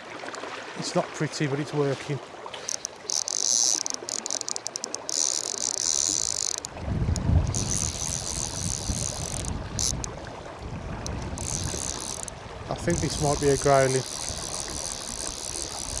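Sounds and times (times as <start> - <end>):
fly reel ratchet buzzing: 2.6 - 10.1, 11.0 - 16.0
wind rumble on microphone: 6.2 - 16.0.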